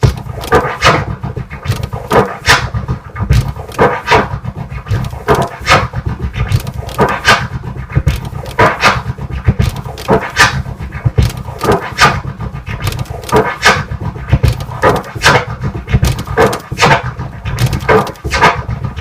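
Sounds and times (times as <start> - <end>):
drum thumps: 0.0 - 19.0
turntable scratching: 0.0 - 19.0.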